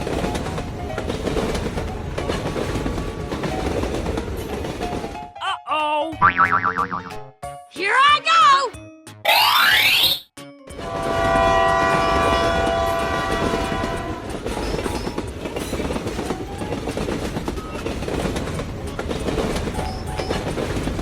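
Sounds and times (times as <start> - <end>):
moving train rumble: 0.0 - 5.4, 10.8 - 21.0
train horn chord: 10.8 - 14.3.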